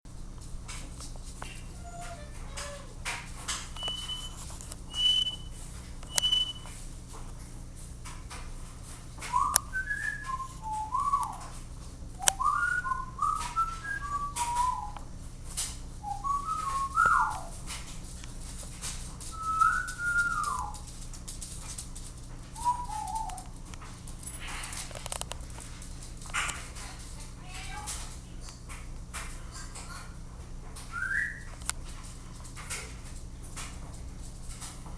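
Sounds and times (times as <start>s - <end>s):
person whistling: 4.9s - 5.5s.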